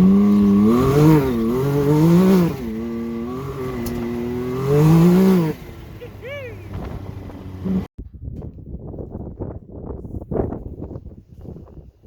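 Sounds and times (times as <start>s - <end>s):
turbocharged engine revving: 0.0s - 7.9s.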